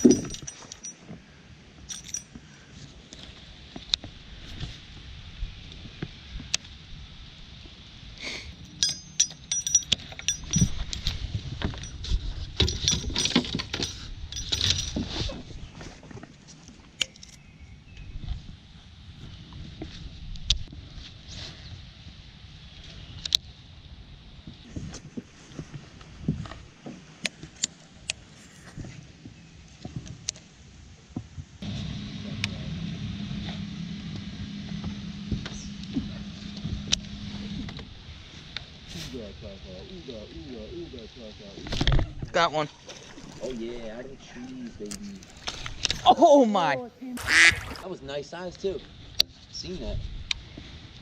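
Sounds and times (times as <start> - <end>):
small hard objects clinking: 0.0 - 1.0, 8.6 - 11.2
electric motor humming: 31.6 - 37.8.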